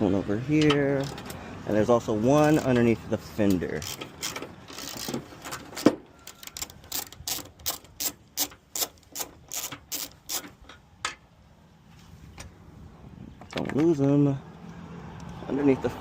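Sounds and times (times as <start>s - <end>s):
socket ratchet clicking: 3.8s - 5.2s, 6.3s - 10.5s.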